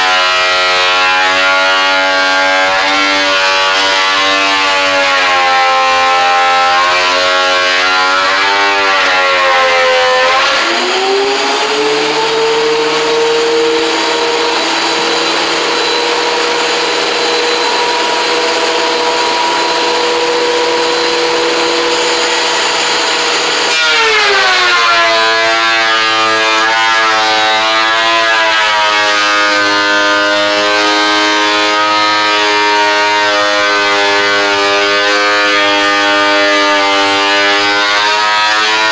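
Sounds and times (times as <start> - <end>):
power tool motor whine: 8.0 - 25.0.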